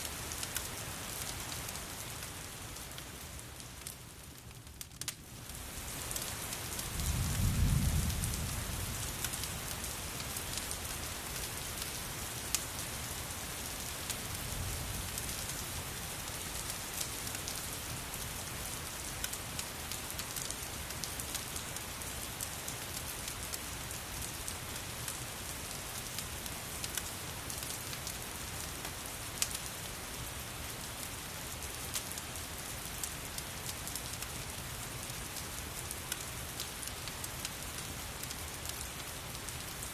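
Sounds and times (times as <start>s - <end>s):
heavy rain: 0.0s - 4.6s, 5.2s - 39.9s
thunder rumble: 7.0s - 8.9s.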